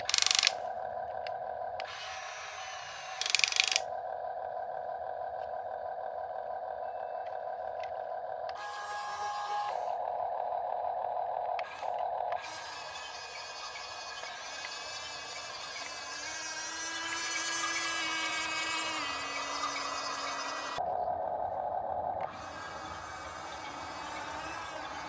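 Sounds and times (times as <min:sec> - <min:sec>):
rattling bursts: 0:00.0 - 0:05.8
toy excavator motors whining: 0:00.0 - 0:20.9, 0:21.9 - 0:25.0.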